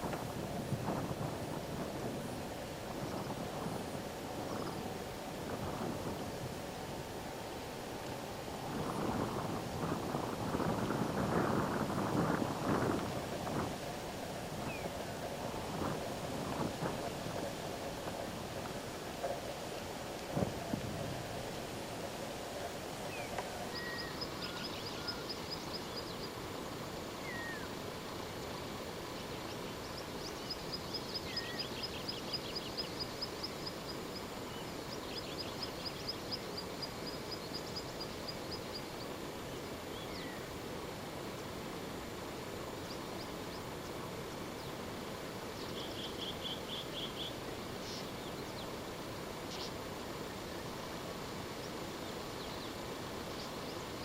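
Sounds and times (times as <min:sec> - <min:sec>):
background hiss: 0:00.0 - 0:54.0
whistled bird notes: 0:23.1 - 0:26.2, 0:27.2 - 0:27.7, 0:30.2 - 0:32.9.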